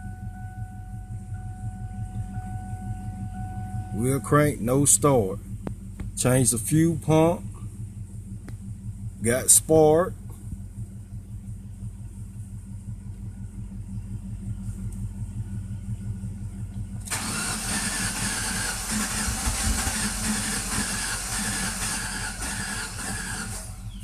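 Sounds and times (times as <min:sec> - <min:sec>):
car engine cranking: 0:16.8 - 0:24.0.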